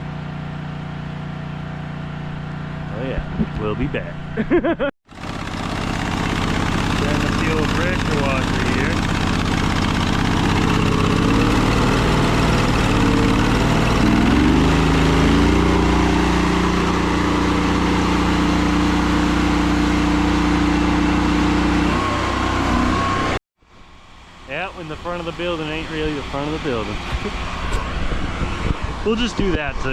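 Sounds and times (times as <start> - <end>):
pressure washer gas engine running: 0.0 - 3.8, 5.1 - 23.4, 24.0 - 29.9.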